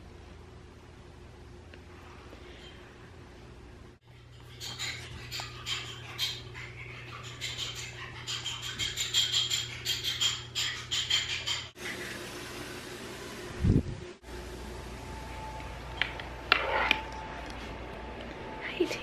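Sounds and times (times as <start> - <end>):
low steady hum: 0.0 - 8.7.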